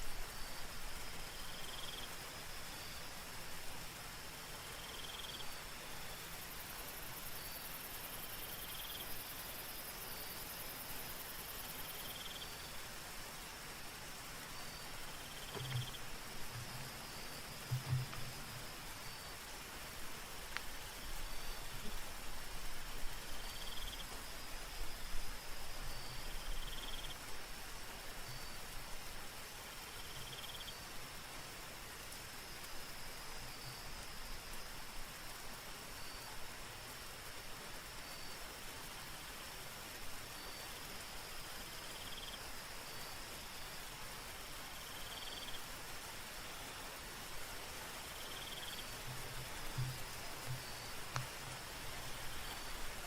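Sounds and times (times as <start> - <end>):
insect short chirp: 0.0 - 31.0, 32.3 - 37.0, 37.8 - 53.0
soft steady rain: 0.0 - 53.0
insect fast-pulsing trill: 0.3 - 3.1, 4.6 - 12.8, 14.6 - 20.0, 23.1 - 25.2, 25.9 - 27.2, 29.9 - 30.8, 41.7 - 43.8, 44.7 - 45.7, 47.9 - 53.0.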